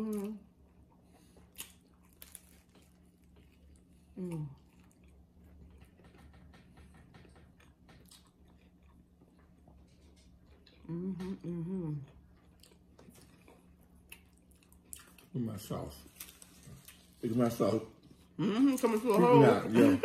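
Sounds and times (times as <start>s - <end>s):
person chewing food: 0.0s - 15.4s, 16.0s - 17.2s
faint steady hum: 0.0s - 20.0s
person humming: 10.8s - 12.1s.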